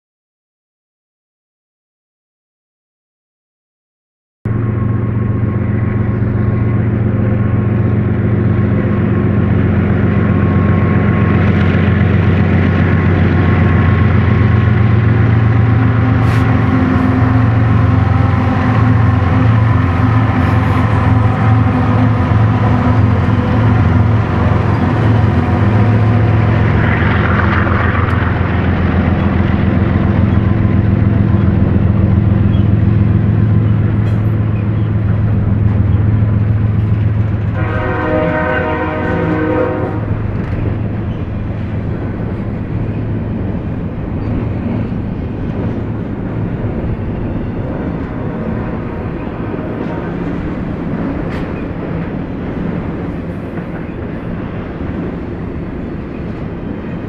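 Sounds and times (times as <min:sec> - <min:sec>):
locomotive engine drone: 0:04.5 - 0:57.0
train wheels on rails: 0:04.6 - 0:57.0.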